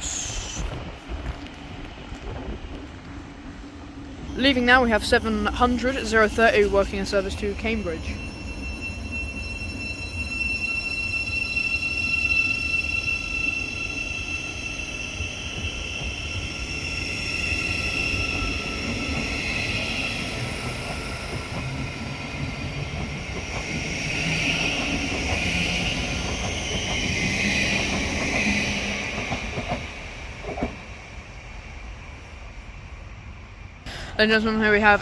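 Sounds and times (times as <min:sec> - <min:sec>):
rushing hiss of train: 0:00.0 - 0:34.2
train traction motor whine: 0:04.2 - 0:30.5.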